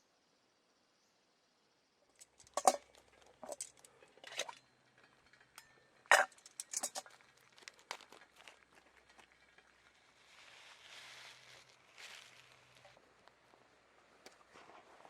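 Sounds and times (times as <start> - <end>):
cookware and utensils clinking: 2.2 - 7.3.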